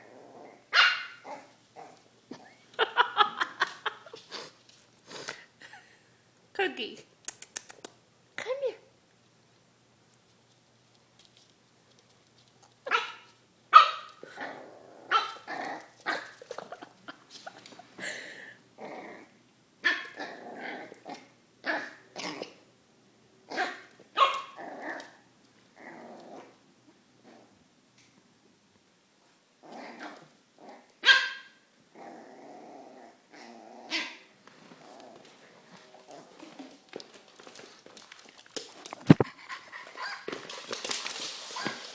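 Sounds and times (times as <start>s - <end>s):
puppy growling: 0.0s - 2.6s, 14.2s - 18.1s, 18.8s - 22.6s, 23.5s - 26.6s, 29.6s - 30.9s, 31.9s - 41.9s
puppy barking: 0.7s - 1.4s, 12.9s - 14.1s, 15.1s - 15.4s, 23.6s - 24.6s, 31.0s - 31.6s.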